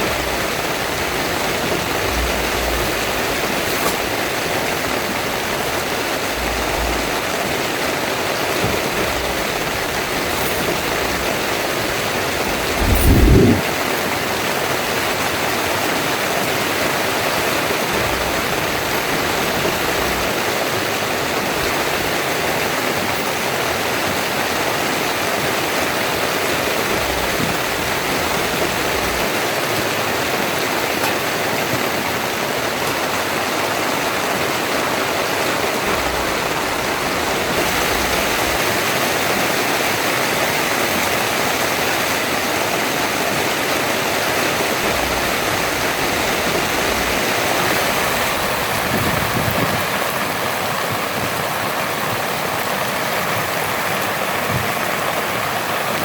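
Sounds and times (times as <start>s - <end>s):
heavy rain pouring: 0.0s - 56.0s
brief low rumble: 12.5s - 13.8s.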